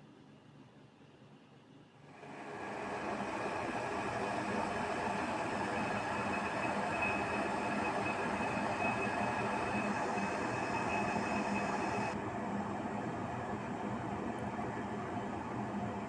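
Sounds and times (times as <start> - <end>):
faint high whine: 2.1 - 12.2
electric kettle heating water: 2.1 - 16.0.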